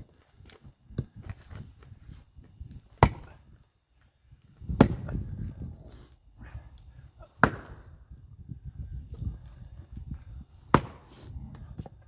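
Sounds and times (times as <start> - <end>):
axe chopping wood: 2.9 - 3.4, 4.7 - 5.3, 7.4 - 8.0, 10.6 - 11.2.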